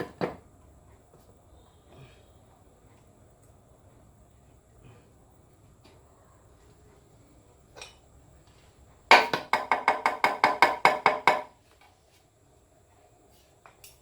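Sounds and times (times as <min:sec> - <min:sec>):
rapid sharp ringing knocks: 0:09.1 - 0:11.5.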